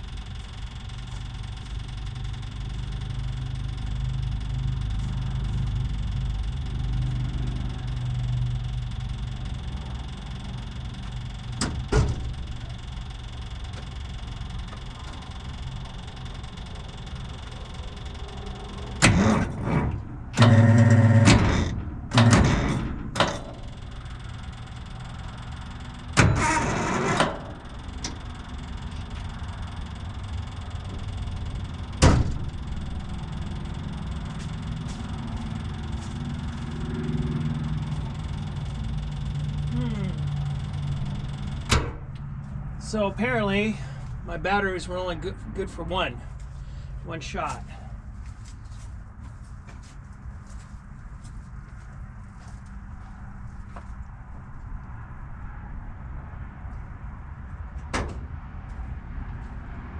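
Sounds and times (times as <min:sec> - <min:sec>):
diesel engine starter cranking: 0:00.0 - 0:45.2
steady low hum: 0:00.0 - 0:59.9.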